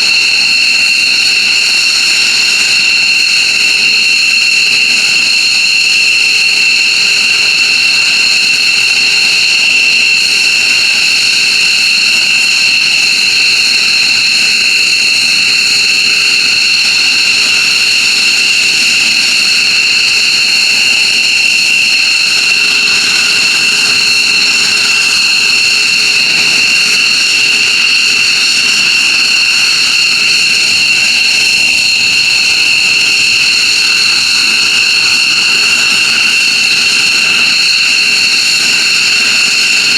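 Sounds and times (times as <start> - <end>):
jet engines running: 13.4 - 39.9.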